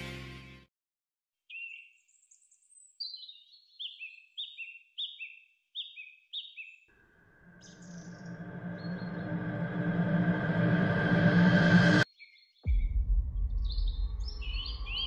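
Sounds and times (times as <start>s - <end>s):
music: 0.0s - 0.7s, 8.0s - 12.1s, 12.7s - 15.0s
bird chirping: 1.5s - 9.8s, 12.1s - 15.0s.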